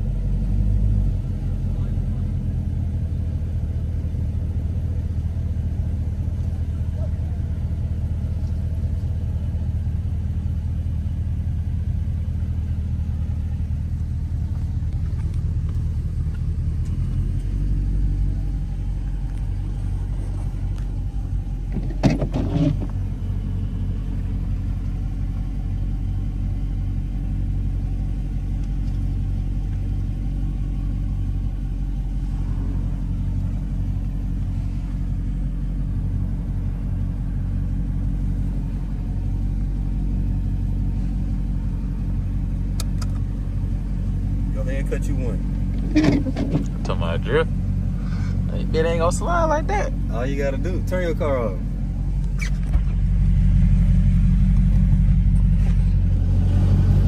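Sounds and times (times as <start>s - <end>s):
car engine rumbling: 0.0s - 57.0s.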